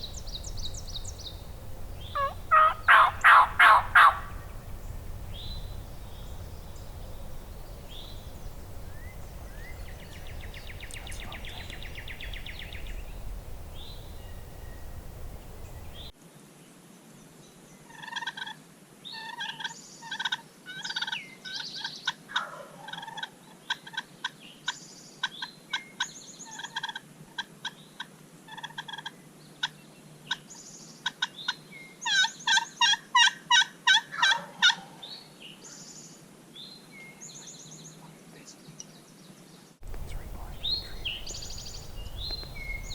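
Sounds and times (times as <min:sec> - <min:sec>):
steady low rumble: 0:00.0 - 0:16.1, 0:39.8 - 0:42.9
wild turkey calling: 0:00.0 - 0:16.1, 0:19.2 - 0:30.4, 0:31.0 - 0:35.0, 0:39.8 - 0:42.9
faint songbird chirps: 0:00.0 - 0:16.2, 0:35.0 - 0:42.9.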